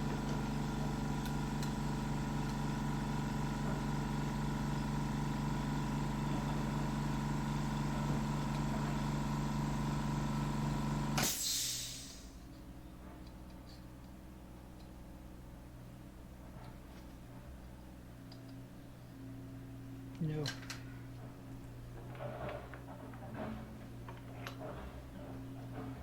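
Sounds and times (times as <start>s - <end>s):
milling machine motor hum: 0.0s - 11.2s, 19.3s - 26.0s
brief hiss of machine stopping: 11.2s - 12.4s.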